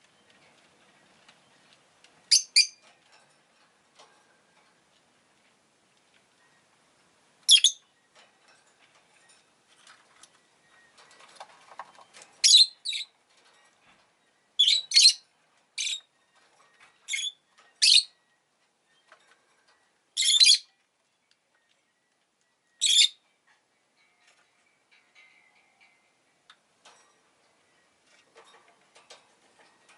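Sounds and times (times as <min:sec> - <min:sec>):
bird chirping high-pitched: 0:02.3 - 0:02.8, 0:07.5 - 0:07.9, 0:12.4 - 0:13.1, 0:14.6 - 0:15.2, 0:15.8 - 0:16.1, 0:17.1 - 0:18.2, 0:20.2 - 0:20.7, 0:22.8 - 0:23.2.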